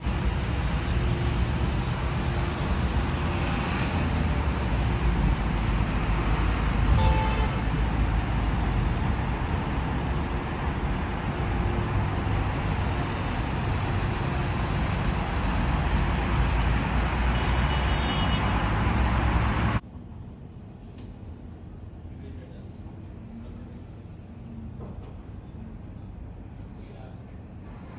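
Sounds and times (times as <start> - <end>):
road traffic rumble: 0.0 - 19.8.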